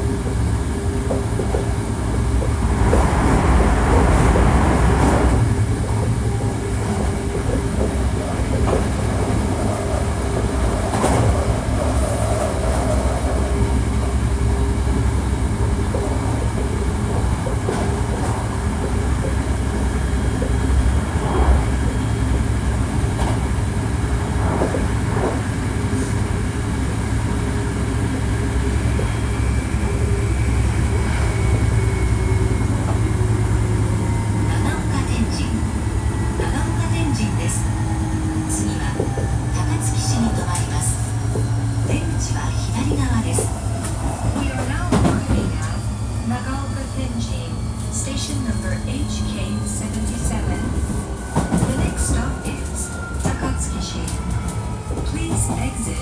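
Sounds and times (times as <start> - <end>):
train wheels rumbling on rail: 0.0 - 56.0
track clicks and knocks: 0.1 - 26.4.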